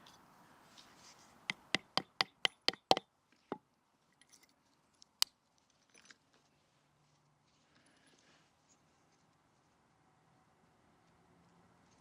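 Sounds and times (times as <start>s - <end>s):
wooden baton knocking on knife: 1.5s - 3.0s.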